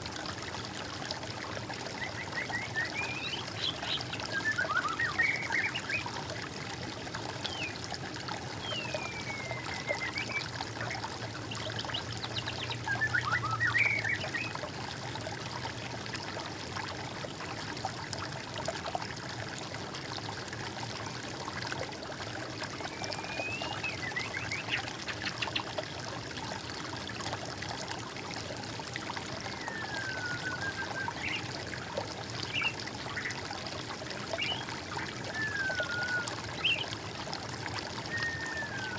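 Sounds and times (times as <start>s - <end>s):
water trickling: 0.0s - 38.9s
songbirds whistling and chirping: 2.0s - 6.2s, 8.6s - 14.6s, 22.8s - 25.7s, 29.4s - 31.5s, 32.4s - 33.4s, 34.3s - 37.0s, 38.0s - 38.9s.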